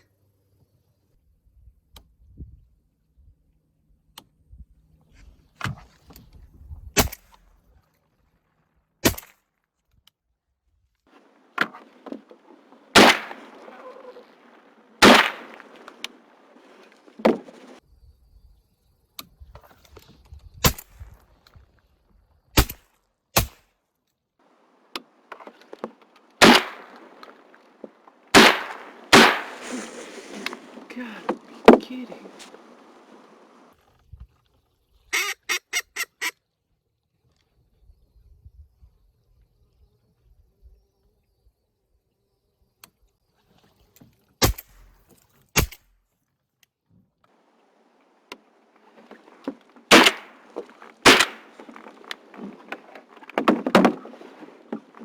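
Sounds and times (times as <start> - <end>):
water splashing: 11.2 - 17.8, 24.7 - 33.7, 47.5 - 55.0
paddle knocking on kayak hull: 11.6 - 17.8, 25.3 - 33.7, 48.3 - 55.0.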